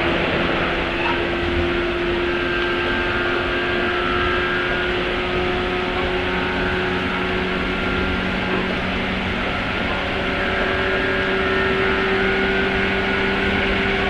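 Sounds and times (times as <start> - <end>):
steady motor hum: 0.0 - 14.0
train wheels on rails: 0.0 - 14.0.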